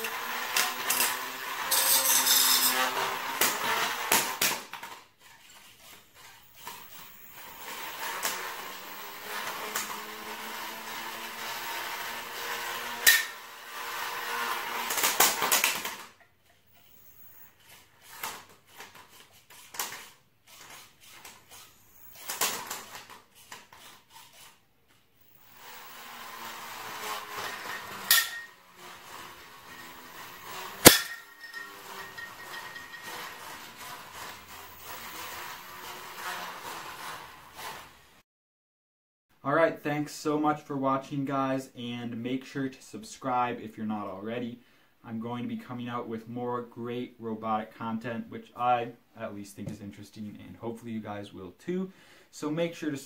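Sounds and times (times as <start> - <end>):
spinner weapon whining: 0.0 - 4.6, 5.2 - 10.0, 12.3 - 24.6, 25.2 - 37.6.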